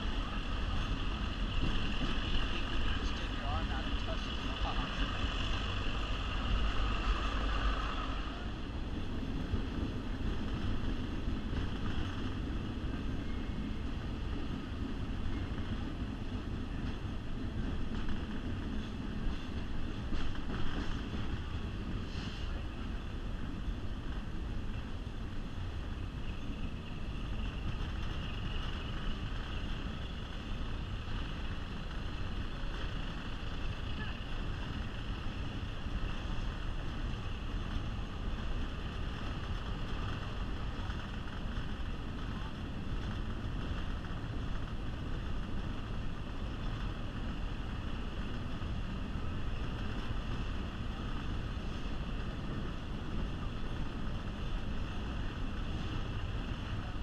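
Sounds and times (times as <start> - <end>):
train wheels on rail: 0.0 - 57.0.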